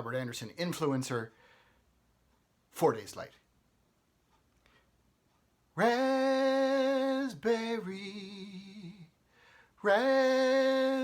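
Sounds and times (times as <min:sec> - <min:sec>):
man singing a jingle: 0:05.7 - 0:09.2, 0:09.8 - 0:11.0.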